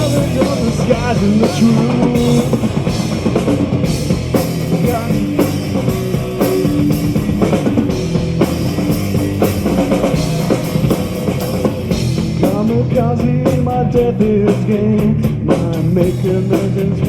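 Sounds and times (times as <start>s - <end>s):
bass guitar: 0.0s - 17.0s
distorted electric guitars: 0.0s - 17.0s
drum kit beating: 0.0s - 17.0s.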